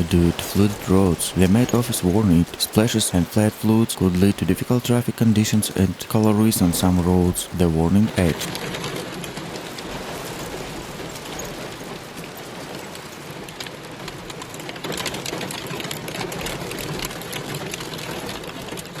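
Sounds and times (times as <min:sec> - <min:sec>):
low steady hum: 0:00.0 - 0:08.5
heavy rain on hard surface: 0:00.0 - 0:19.0.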